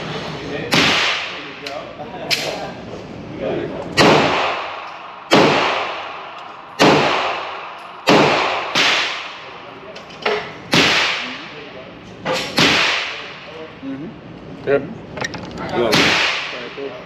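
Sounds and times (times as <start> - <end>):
faint gunshots: 0.7 - 1.6, 4.0 - 9.6, 10.7 - 11.6, 12.3 - 13.4, 15.9 - 16.9
handgun shots echoing: 4.0 - 9.6, 10.7 - 11.5, 15.9 - 16.7.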